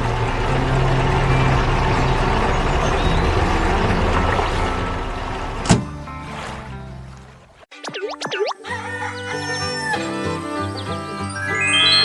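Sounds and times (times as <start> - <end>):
heavy vehicle engine rumbling: 0.0 - 7.1.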